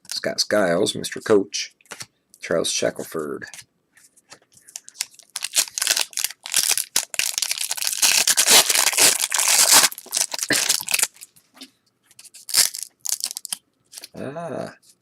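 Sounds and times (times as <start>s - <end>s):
wrapper tearing and crinkling: 4.7s - 11.3s, 12.3s - 14.1s.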